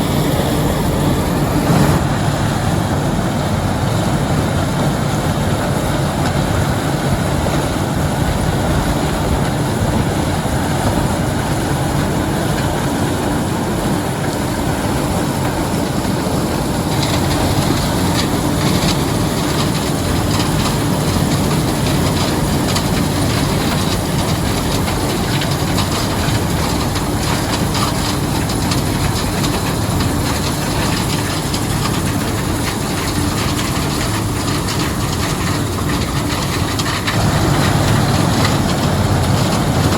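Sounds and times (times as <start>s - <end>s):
combine harvester engine drone: 0.0s - 39.9s
rattling clatter: 16.3s - 39.9s.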